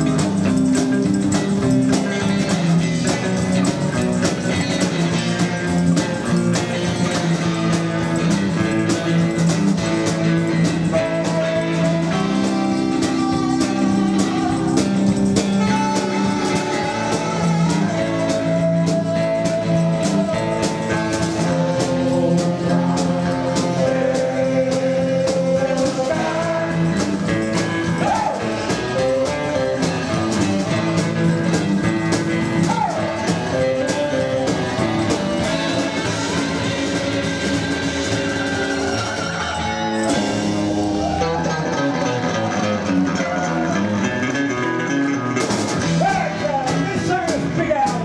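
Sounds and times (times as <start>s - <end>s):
rockabilly band playing: 0.0s - 48.0s
person singing: 10.0s - 44.3s.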